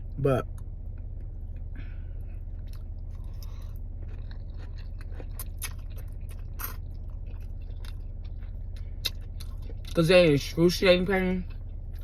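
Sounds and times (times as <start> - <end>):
low hum: 0.0 - 12.0
person chewing crunchy food: 2.4 - 10.0.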